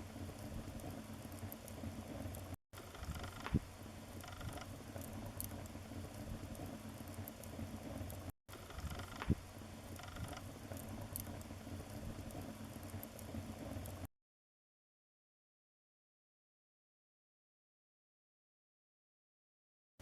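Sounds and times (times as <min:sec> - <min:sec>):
wood fire crackling: 0:00.0 - 0:14.1.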